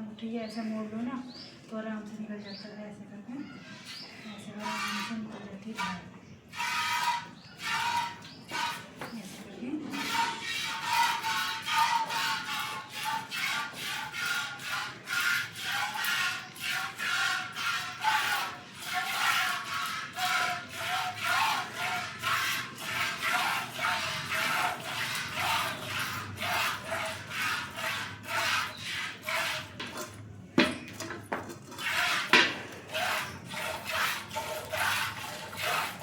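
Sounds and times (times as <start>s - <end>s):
milk squirting into bucket: 10.0s - 30.2s, 31.0s - 36.0s.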